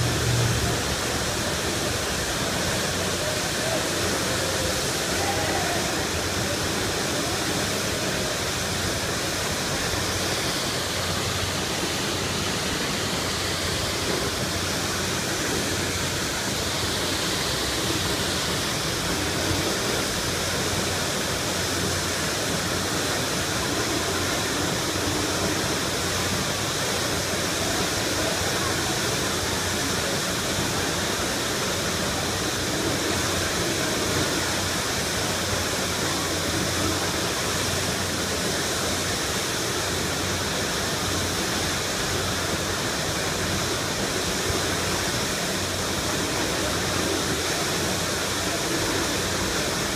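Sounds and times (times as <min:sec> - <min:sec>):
water gushing from fire hydrant: 0:00.0 - 0:49.9.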